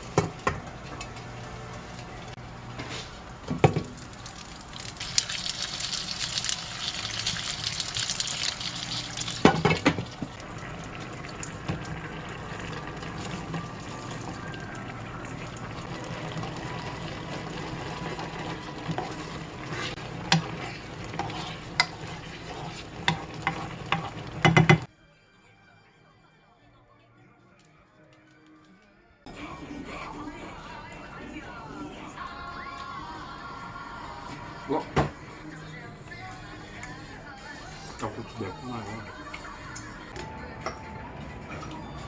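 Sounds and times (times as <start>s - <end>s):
food sizzling in a pan: 0.0s - 24.9s
utensils knocking cookware: 23.0s - 24.9s.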